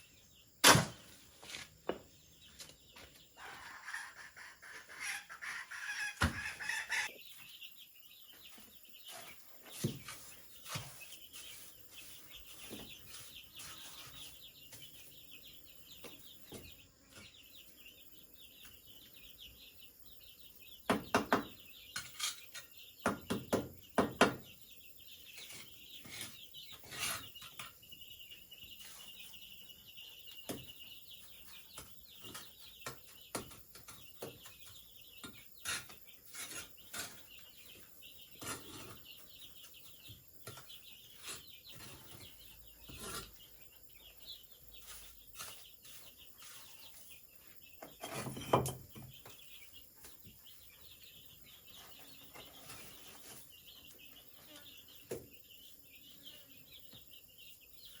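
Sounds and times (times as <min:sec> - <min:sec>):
birds chirping: 0:00.0 - 0:58.0
knocking and scraping on bamboo: 0:00.6 - 0:03.2, 0:06.1 - 0:06.7, 0:08.5 - 0:15.0, 0:20.9 - 0:24.5, 0:31.5 - 0:43.5, 0:44.7 - 0:47.1, 0:47.8 - 0:49.4.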